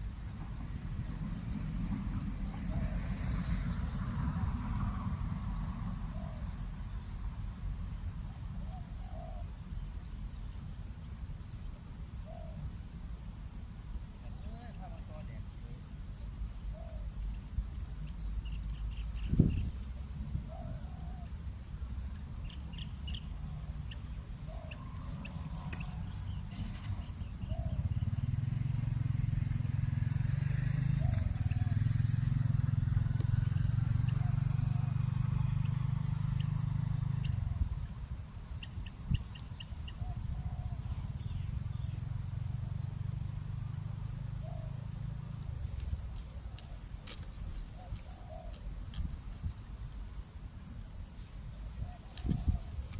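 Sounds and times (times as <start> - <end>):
low engine rumble: 0.0 - 52.9
doves cooing: 1.9 - 7.0, 8.2 - 9.8, 12.1 - 12.8, 16.6 - 17.6, 18.6 - 38.0, 38.6 - 42.9, 43.9 - 48.9, 51.5 - 52.9.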